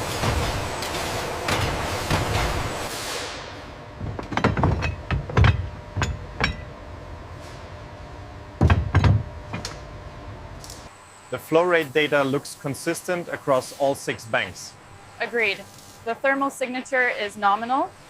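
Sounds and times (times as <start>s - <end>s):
hiss: 0.0s - 3.6s
metallic knocks and clanks: 4.0s - 6.8s, 8.6s - 9.8s.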